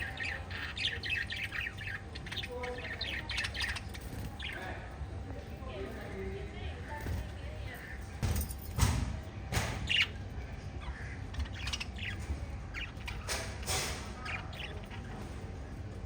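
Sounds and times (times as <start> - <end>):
parrots chirping and squawking: 0.0 - 5.0, 9.6 - 16.0.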